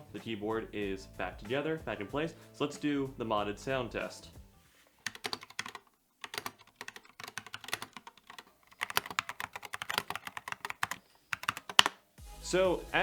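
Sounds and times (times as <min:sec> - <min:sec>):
fast typing on mechanical keyboard: 0:05.0 - 0:12.0.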